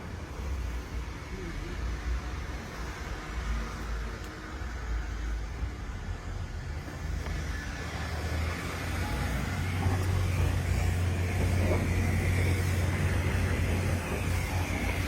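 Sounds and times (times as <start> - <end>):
car wash low rumble: 0.0 - 15.0
broad hiss: 6.2 - 15.0.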